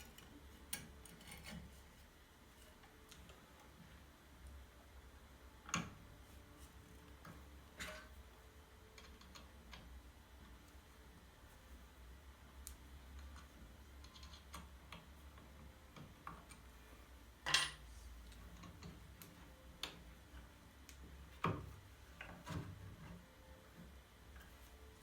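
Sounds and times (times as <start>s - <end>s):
tools and wood clicking: 0.0s - 1.8s, 8.9s - 9.9s, 12.6s - 16.7s
low steady hum: 0.0s - 25.0s.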